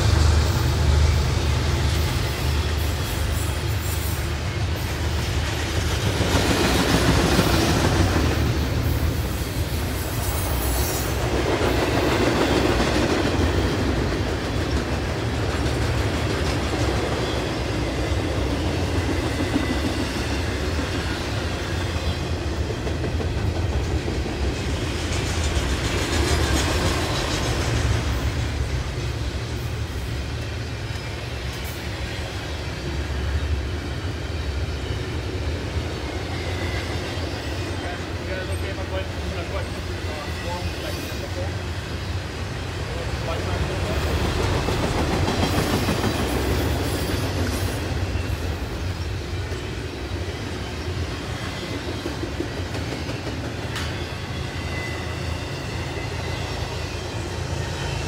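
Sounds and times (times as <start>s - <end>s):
wheels rumbling on rail: 0.0s - 58.0s
clickety-clack of wheels: 4.8s - 29.5s, 43.2s - 49.8s, 51.1s - 54.1s.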